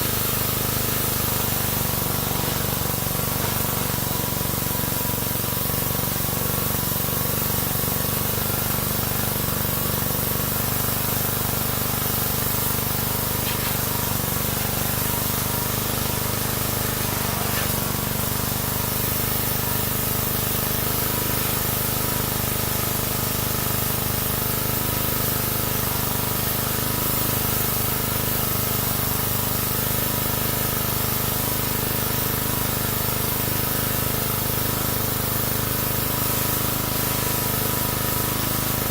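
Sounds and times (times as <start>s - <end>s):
pressure washer spraying water: 0.0s - 38.9s.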